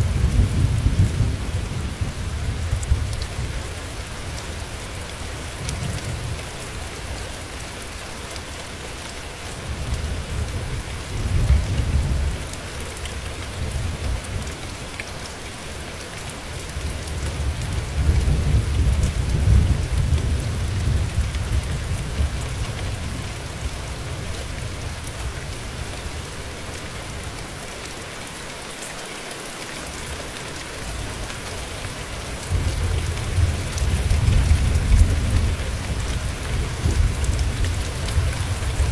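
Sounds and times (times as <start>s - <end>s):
thunder rumbling: 0.0s - 3.7s, 32.4s - 38.9s
heavy rain hissing: 0.0s - 38.9s.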